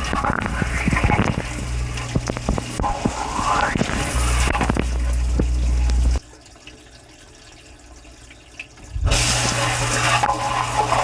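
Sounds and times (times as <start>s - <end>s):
low pump hum: 0.0s - 11.0s
water spraying and splashing: 8.9s - 11.0s.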